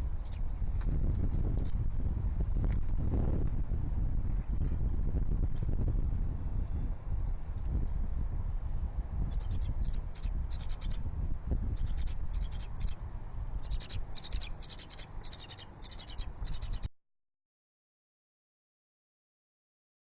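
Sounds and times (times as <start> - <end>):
wind buffeting microphone: 0.0 - 16.9
high-pitched trilled bird calls: 0.2 - 0.5, 8.8 - 13.0, 13.6 - 16.9.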